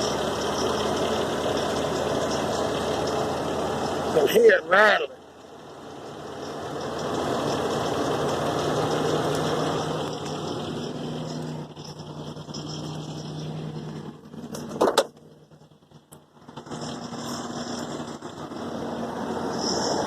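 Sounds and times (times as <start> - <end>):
engine rattle: 0.0 - 20.0
truck engine idling: 0.0 - 20.0.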